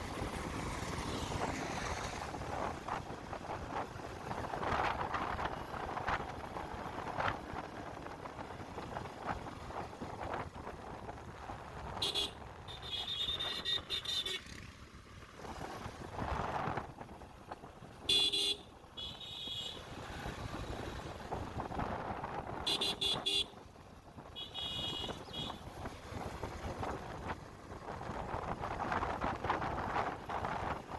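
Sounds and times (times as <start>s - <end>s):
wind rumble: 0.0s - 13.4s, 19.8s - 30.9s
vehicle horn tooting: 12.0s - 14.5s, 18.1s - 19.8s, 22.6s - 23.6s, 24.3s - 25.6s.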